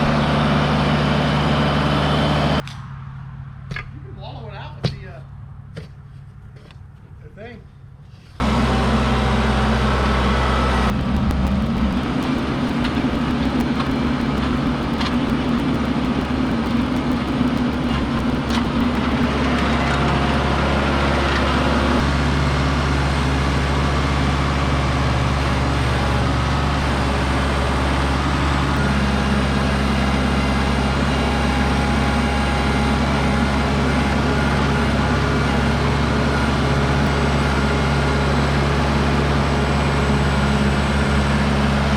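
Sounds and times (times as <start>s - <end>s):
engine humming: 0.0s - 2.6s, 8.4s - 32.1s
rushing noise: 10.9s - 22.3s.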